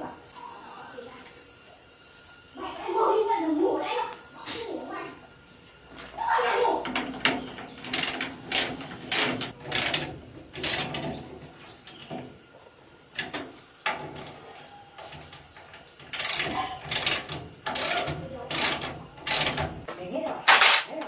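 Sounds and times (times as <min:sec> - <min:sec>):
metal clanks and clicks: 0:06.8 - 0:12.3, 0:13.2 - 0:19.9, 0:20.5 - 0:21.0.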